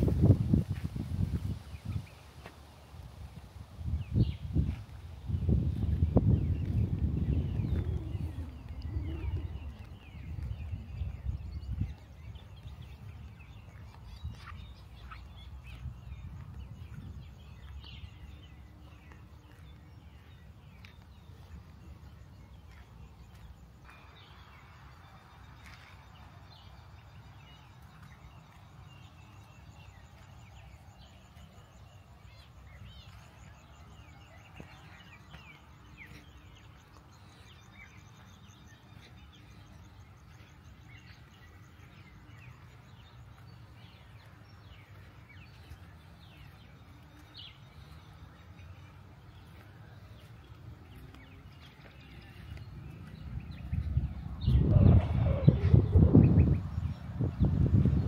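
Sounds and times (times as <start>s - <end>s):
wild birds chirping: 0.0s - 58.0s.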